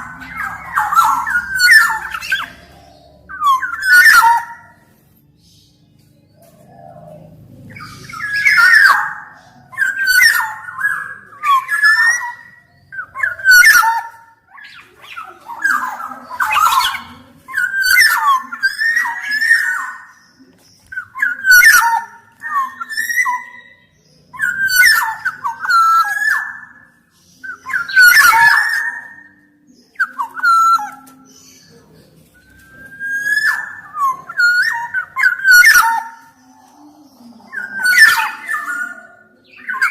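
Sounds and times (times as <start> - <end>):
bird singing whistled phrases: 0.0 - 4.9, 7.8 - 39.9.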